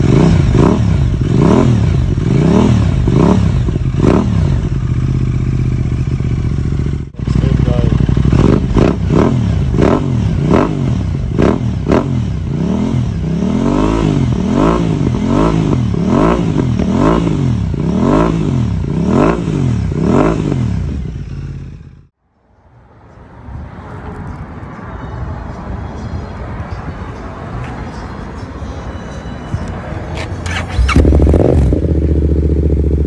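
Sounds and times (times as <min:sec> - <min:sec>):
motorcycle engine revving: 0:00.0 - 0:22.2, 0:30.4 - 0:33.0.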